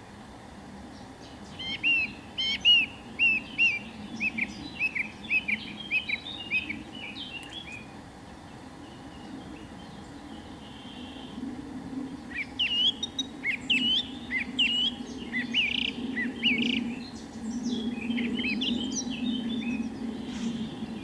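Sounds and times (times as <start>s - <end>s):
steady low hum: 0.0s - 21.0s
birds chirping: 0.5s - 21.0s.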